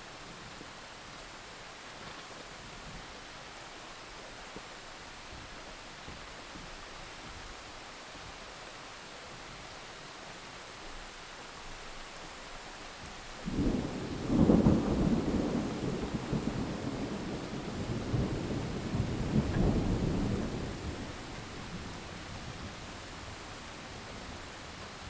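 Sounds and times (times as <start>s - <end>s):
steady rain hiss: 0.0s - 25.0s
thunder rumbling: 13.4s - 25.0s.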